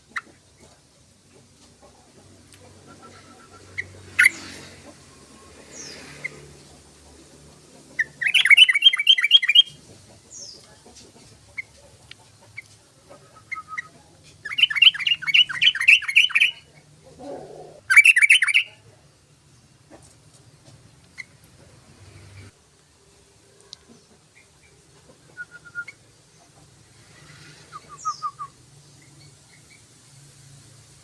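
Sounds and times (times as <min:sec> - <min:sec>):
bulbul chattering song: 0:05.5 - 0:10.7, 0:11.5 - 0:18.8.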